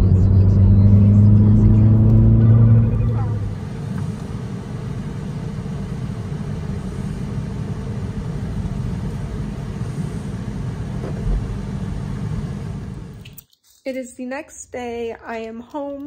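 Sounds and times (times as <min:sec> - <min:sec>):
car engine and road drone: 0:00.0 - 0:13.4.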